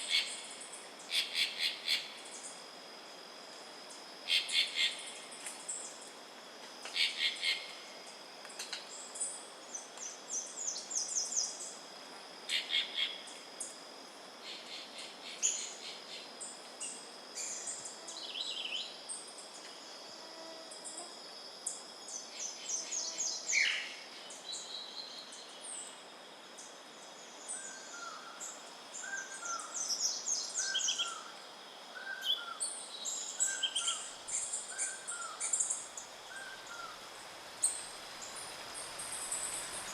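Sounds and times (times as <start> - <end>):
insect drone: 0.0 - 39.9.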